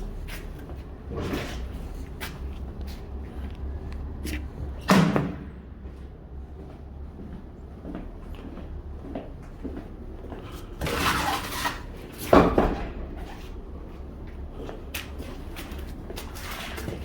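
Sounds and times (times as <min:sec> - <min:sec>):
truck engine rumble: 0:00.0 - 0:17.0
loud thump: 0:04.8 - 0:05.5.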